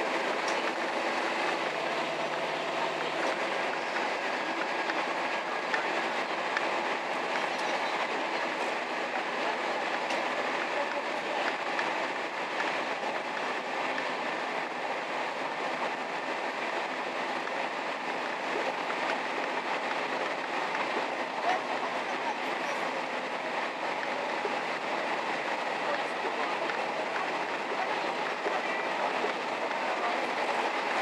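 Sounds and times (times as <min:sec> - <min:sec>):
train wheels rumbling on rail: 0:00.0 - 0:31.0
faint track clicks: 0:06.5 - 0:07.8.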